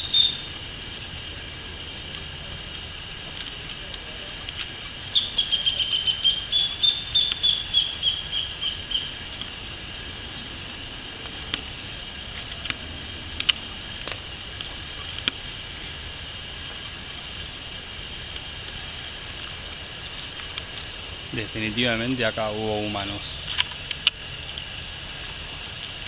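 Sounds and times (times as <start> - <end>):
bird calling short repeated notes: 0.0 - 0.5, 5.1 - 9.2
high insect drone: 0.0 - 26.0.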